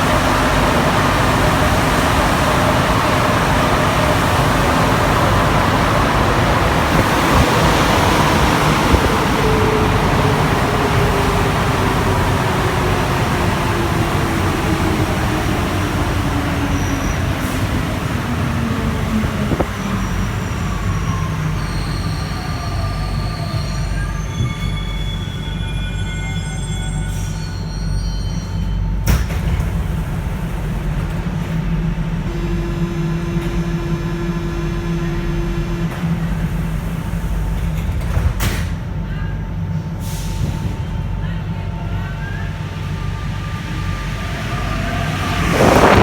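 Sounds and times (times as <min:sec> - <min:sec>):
train brake squeals: 0:19.6 - 0:29.5
train motor whine: 0:26.3 - 0:37.6, 0:43.4 - 0:46.0.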